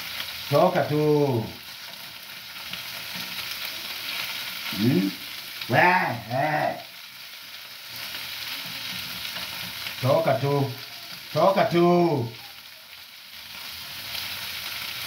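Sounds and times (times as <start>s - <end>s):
liver sizzling in a pan: 0.0s - 15.0s
man's voice: 0.5s - 1.6s, 4.7s - 6.9s, 10.0s - 12.4s.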